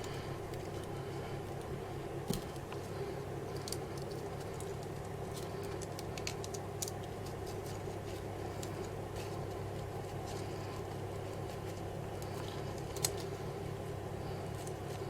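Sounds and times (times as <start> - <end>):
steady low hum: 0.0 - 15.0
small clicks and light scratching: 3.5 - 13.4.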